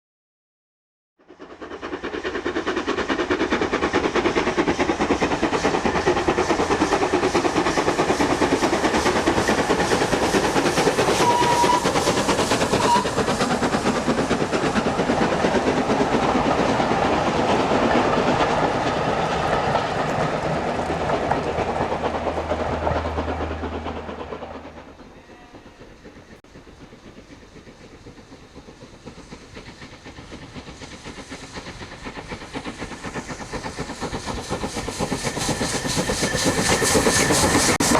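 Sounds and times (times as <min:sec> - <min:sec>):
steam locomotive exhaust beats: 0:01.2 - 0:37.9
steam whistle: 0:10.9 - 0:13.4.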